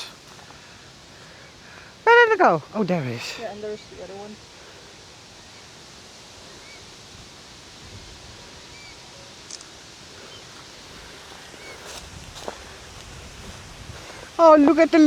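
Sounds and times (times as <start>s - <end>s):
outdoor background hiss: 0.0s - 15.0s
faint bird chirps: 5.3s - 7.1s, 8.6s - 9.6s.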